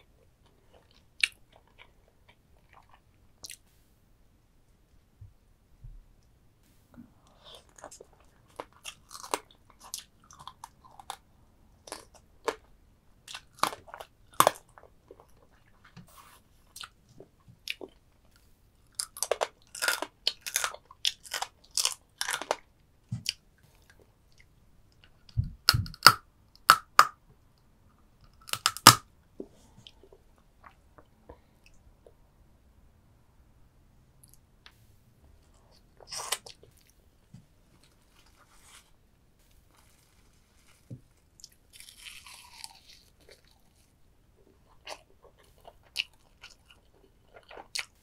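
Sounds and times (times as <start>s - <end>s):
chewing and crunching crab: 18.9s - 22.7s, 41.2s - 43.9s, 44.5s - 48.0s.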